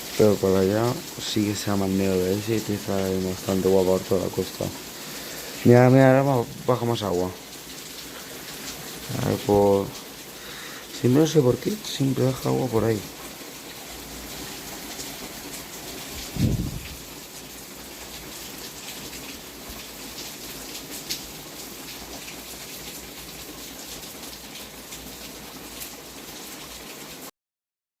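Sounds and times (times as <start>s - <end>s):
heavy rain falling: 0.0s - 27.3s
loud low thump: 16.3s - 17.0s.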